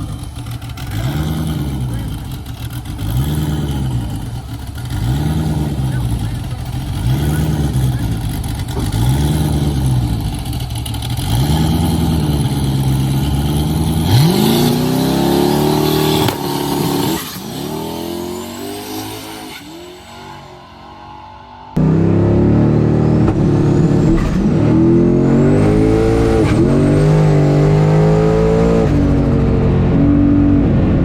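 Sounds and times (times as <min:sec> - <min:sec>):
drag car engine revving: 0:00.0 - 0:31.0.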